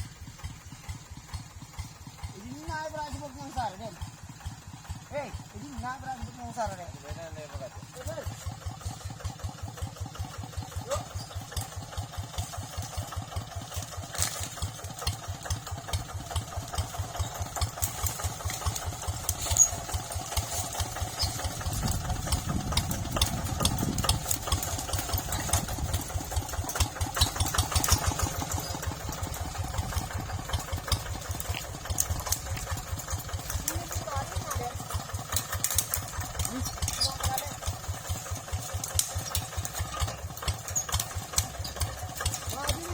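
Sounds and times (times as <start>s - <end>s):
tractor engine pulsing: 0.0s - 42.9s
light rattling clicks: 13.7s - 42.9s.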